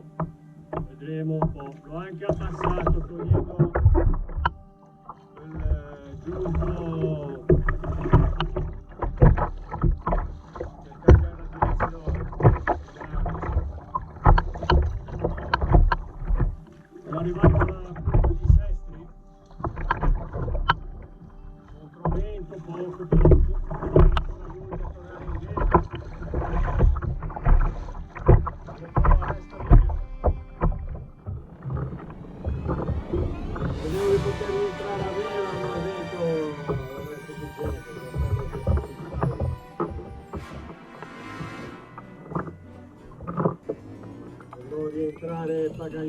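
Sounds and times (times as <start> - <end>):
paddle splashing in water: 0.0 - 45.8
water dripping: 0.0 - 46.0.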